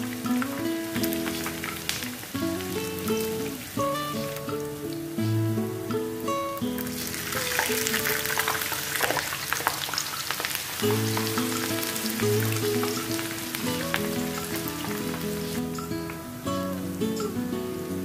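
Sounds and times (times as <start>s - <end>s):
batter sizzling in hot oil: 0.0s - 5.3s, 6.7s - 16.0s
background music: 10.8s - 18.0s.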